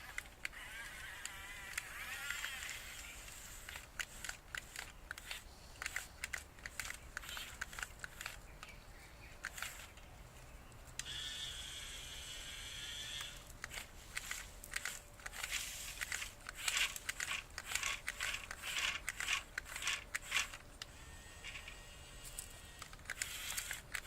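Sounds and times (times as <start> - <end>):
electric motor whine: 0.0 - 4.2, 11.0 - 24.0.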